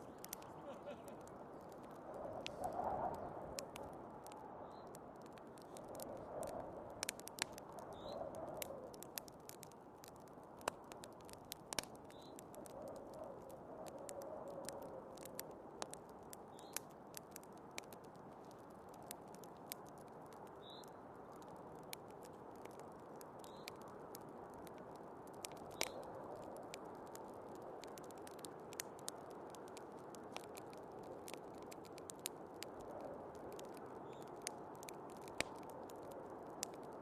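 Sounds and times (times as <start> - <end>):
wood fire crackling and popping: 0.0 - 37.0
snowstorm wind whooshing: 2.0 - 3.7.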